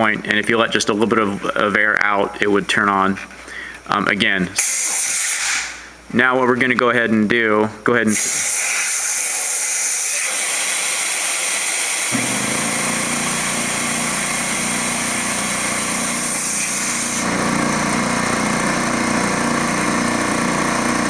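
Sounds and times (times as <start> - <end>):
air hissing out: 4.6 - 5.8, 8.1 - 17.3
air compressor motor running: 8.1 - 21.0.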